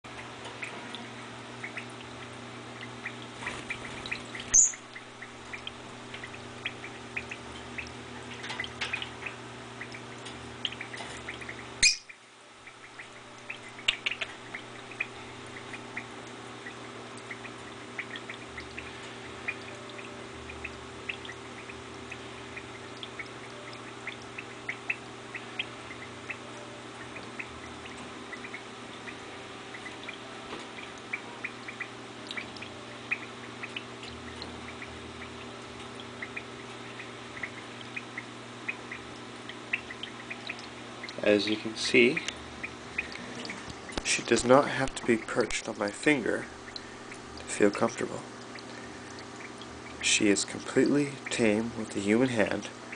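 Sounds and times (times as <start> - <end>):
steady low hum: 0.1 - 52.9
lovebird chirping: 4.4 - 5.6, 10.8 - 14.2.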